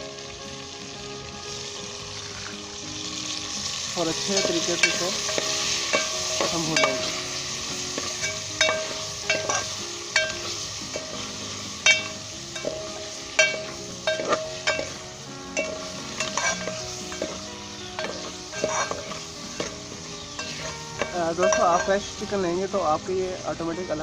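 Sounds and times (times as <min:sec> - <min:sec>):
chicken sizzling in a pot: 0:00.0 - 0:24.0
utensil scraping a pot: 0:04.2 - 0:22.3.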